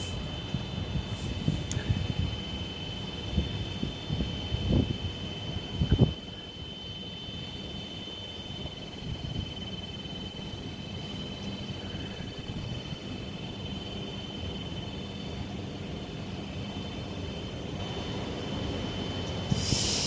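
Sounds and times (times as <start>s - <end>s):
wind on microphone: 0.0s - 2.6s, 3.2s - 6.6s
distant train rumble: 0.0s - 20.0s.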